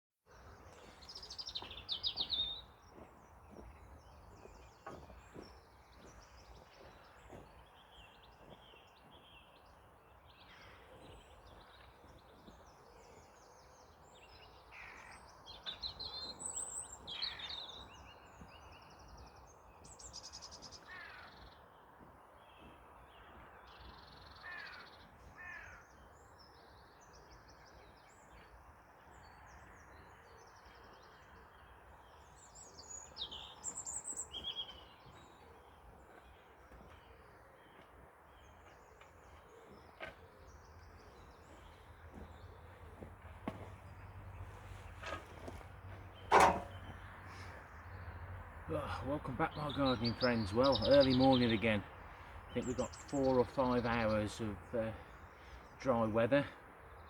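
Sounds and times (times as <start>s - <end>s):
faint outdoor background: 0.2s - 57.0s
birds chirping and singing: 29.2s - 57.0s.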